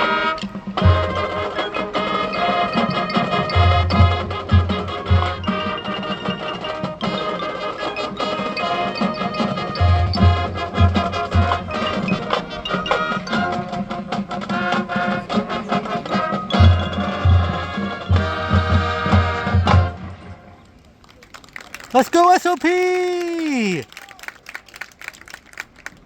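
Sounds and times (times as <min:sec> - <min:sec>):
marching band playing: 0:00.0 - 0:20.2, 0:21.8 - 0:23.8
wind and brass chords: 0:00.0 - 0:20.3.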